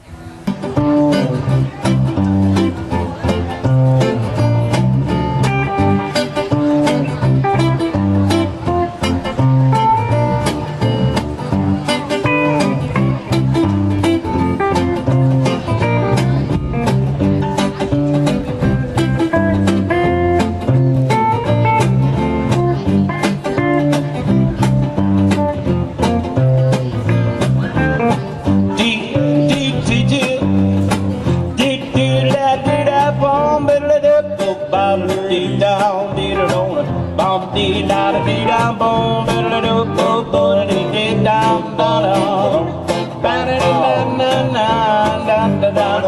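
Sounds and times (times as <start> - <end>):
bass: 0.0 - 46.0
guitar: 0.0 - 46.0
drums beating: 0.4 - 33.7.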